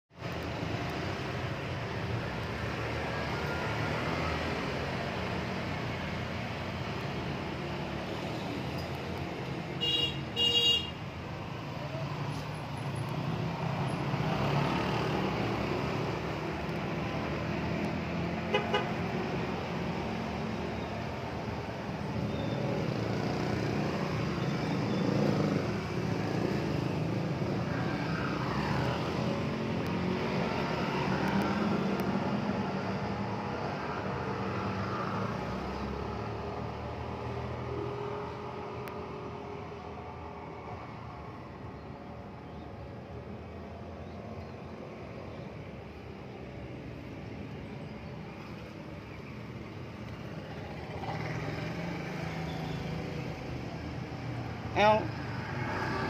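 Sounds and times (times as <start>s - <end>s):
road traffic rumble: 0.1s - 56.0s
vehicle horn toots: 9.8s - 10.9s.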